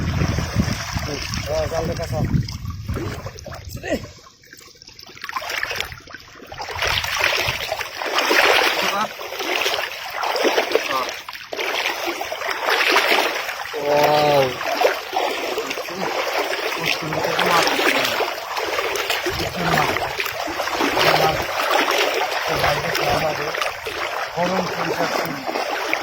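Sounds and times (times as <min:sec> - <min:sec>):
water splashing and sloshing: 0:00.0 - 0:26.0
person calling out: 0:13.8 - 0:14.6
low voices: 0:13.8 - 0:14.7, 0:20.8 - 0:21.6.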